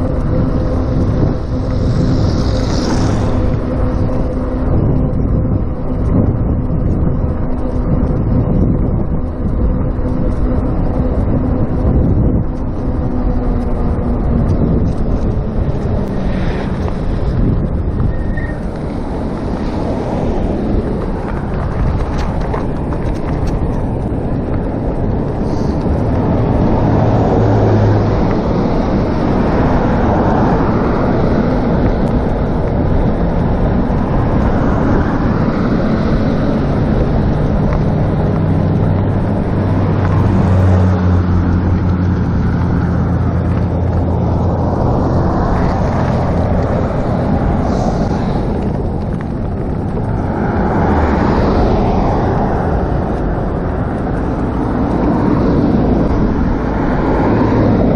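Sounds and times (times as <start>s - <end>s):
low hum: 0.0s - 57.9s
road noise: 0.0s - 57.9s
wind over microphone: 0.0s - 57.9s.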